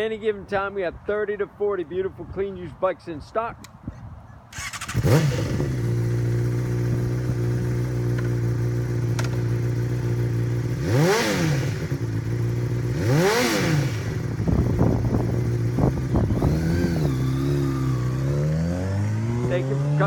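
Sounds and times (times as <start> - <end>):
motorcycle engine starting and idling: 4.5 - 20.0.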